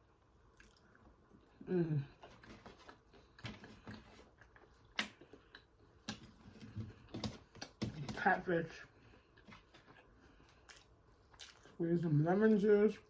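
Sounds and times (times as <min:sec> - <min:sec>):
chewing with mouth sounds: 0:00.4 - 0:07.8, 0:09.0 - 0:11.8.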